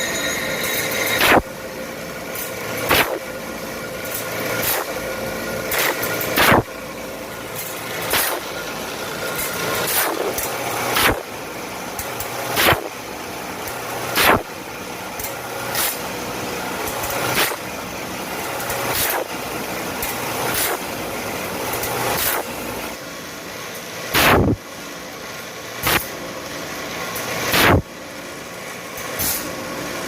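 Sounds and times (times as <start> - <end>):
grinding sweep: 0.0 - 11.4
steady motor noise: 0.0 - 30.0.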